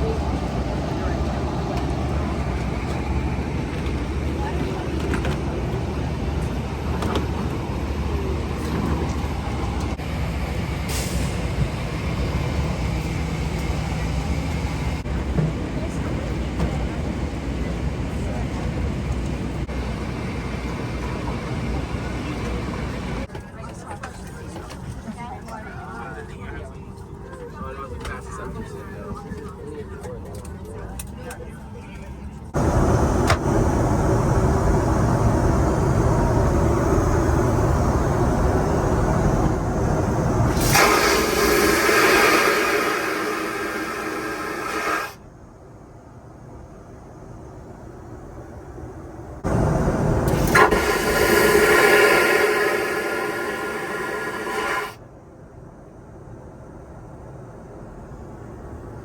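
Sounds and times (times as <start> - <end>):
airliner cabin rumble: 0.0 - 59.0
loud hissing rush: 32.6 - 45.2, 49.4 - 55.0.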